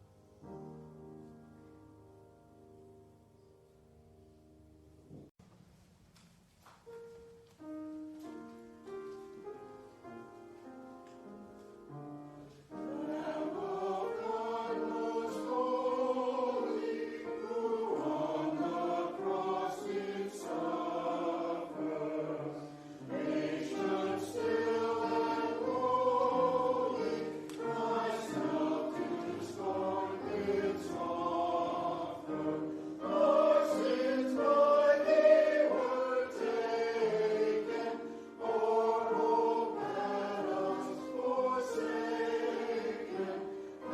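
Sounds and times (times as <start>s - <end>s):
choir singing: 11.9s - 43.9s.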